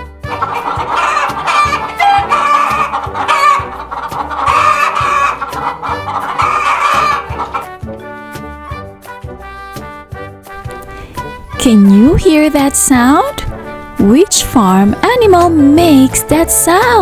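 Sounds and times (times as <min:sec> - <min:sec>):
hens clucking: 0:00.2 - 0:07.9.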